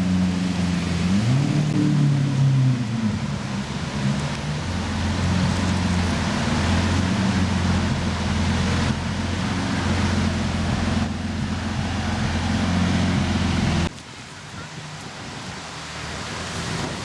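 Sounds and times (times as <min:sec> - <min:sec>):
rain hiss: 0:00.0 - 0:17.0
car engine idling: 0:02.0 - 0:15.0.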